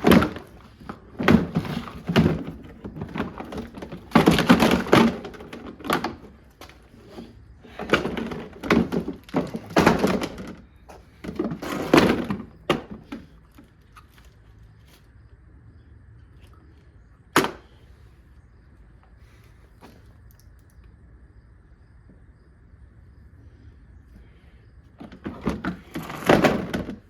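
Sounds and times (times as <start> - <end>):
plastic being smashed: 1.2 - 6.7, 7.8 - 10.6, 25.3 - 27.0.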